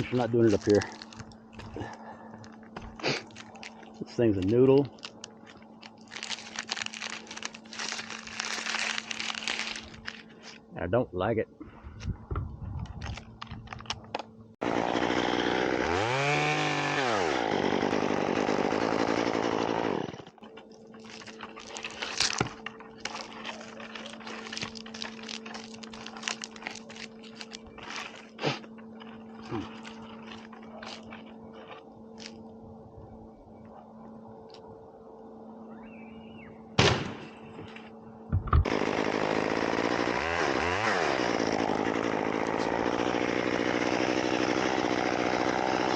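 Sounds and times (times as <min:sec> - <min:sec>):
chainsaw idling and revving: 0:14.6 - 0:20.4, 0:38.6 - 0:45.9.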